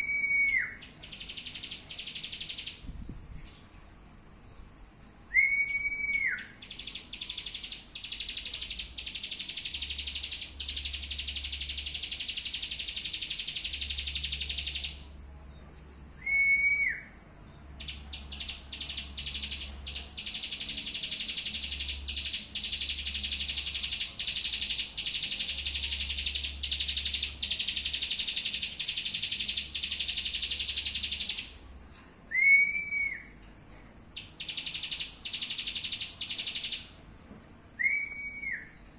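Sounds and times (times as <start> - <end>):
songbird chattering song: 0.0 - 3.7, 6.2 - 15.1, 17.8 - 31.6, 34.2 - 37.0.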